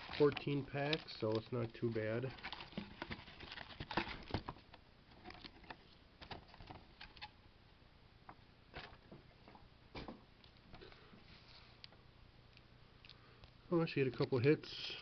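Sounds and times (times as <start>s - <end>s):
card packs rustling and crinkling: 0.0s - 6.8s.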